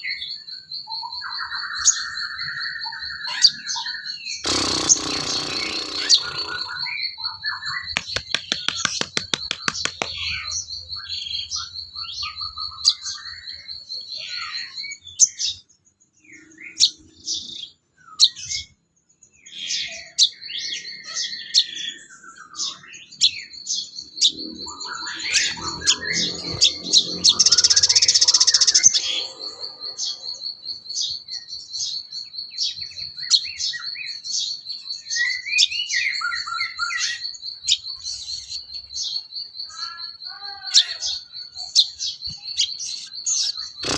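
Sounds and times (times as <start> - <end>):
songbird chirps and whistles: 0.0 - 43.9
high rapid bird trill: 4.3 - 13.2, 22.6 - 34.6, 35.2 - 43.9.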